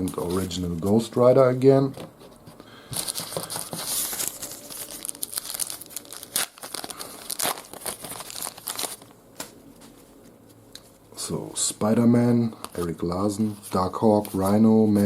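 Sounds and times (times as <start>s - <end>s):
wrapper tearing and crinkling: 3.0s - 9.1s.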